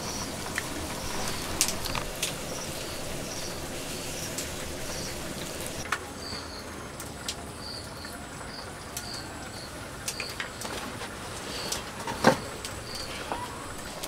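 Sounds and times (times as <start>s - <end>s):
small bird chirping: 0.0s - 6.7s, 12.8s - 14.0s
background hiss: 0.0s - 14.0s.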